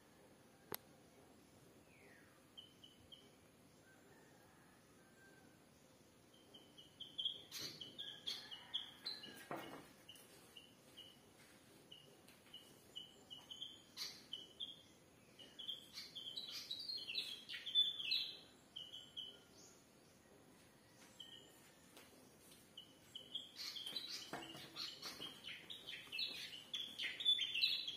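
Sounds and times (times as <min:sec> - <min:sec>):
small birds chirping: 0:01.5 - 0:04.3, 0:06.2 - 0:27.9.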